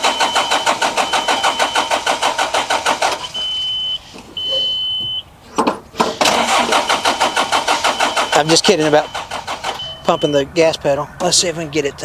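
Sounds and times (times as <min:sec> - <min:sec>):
diesel engine cranking: 0:00.0 - 0:12.0
high-pitched warning beep: 0:03.0 - 0:05.3, 0:07.8 - 0:10.4.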